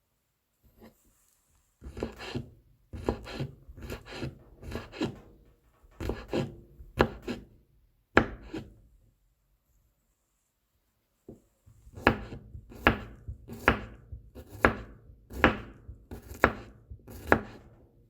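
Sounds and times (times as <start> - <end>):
knife chopping on cutting board: 1.8 - 5.2, 6.0 - 7.4, 8.2 - 8.7, 11.9 - 17.7.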